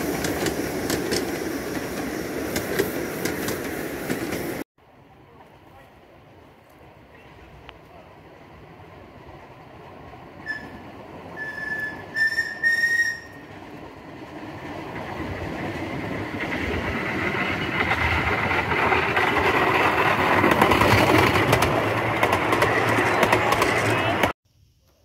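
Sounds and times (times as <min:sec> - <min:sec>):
train wheels clattering on rails: 0:00.0 - 0:04.6, 0:14.5 - 0:24.3
train whistle blasts: 0:11.4 - 0:13.4.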